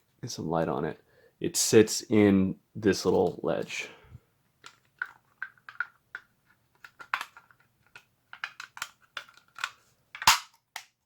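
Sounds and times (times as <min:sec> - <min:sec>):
plastic clicks and taps: 0:04.6 - 0:11.0.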